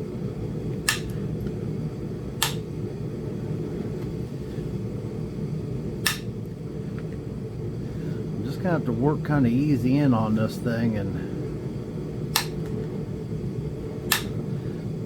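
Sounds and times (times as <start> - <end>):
heater low rumble: 0.0 - 15.0
sharp clicks of flintknapping punch: 0.9 - 1.2, 2.4 - 2.6, 6.0 - 6.3, 12.4 - 12.7, 14.1 - 14.4.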